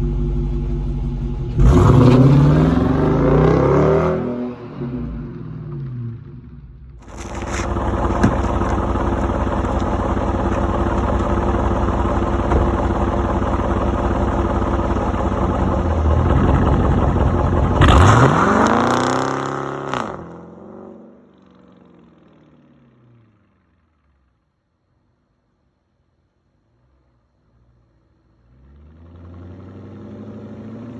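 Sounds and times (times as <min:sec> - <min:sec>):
car engine exhaust revving: 0:00.0 - 0:21.6.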